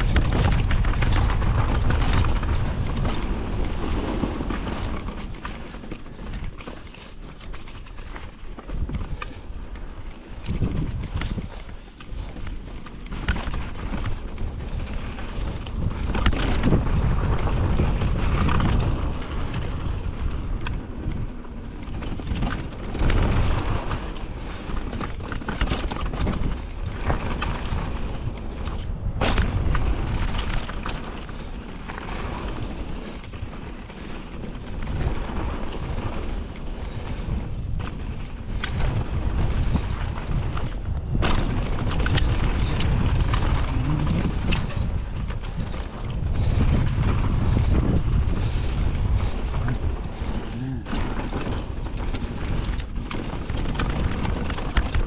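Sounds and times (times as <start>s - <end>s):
bike rattling over ground: 0.0s - 55.0s
wind buffeting microphone: 0.0s - 55.0s.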